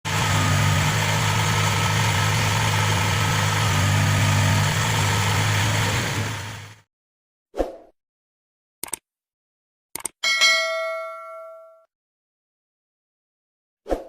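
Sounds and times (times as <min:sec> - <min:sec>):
combine harvester engine humming: 0:00.0 - 0:06.8.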